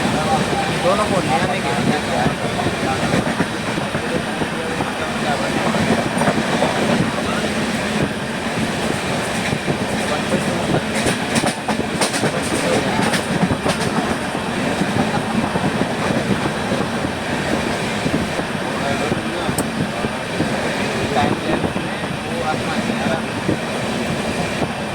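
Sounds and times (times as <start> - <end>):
train carriage rumble and rattle: 0.0 - 24.9
wheel clicks over rails: 8.9 - 14.3.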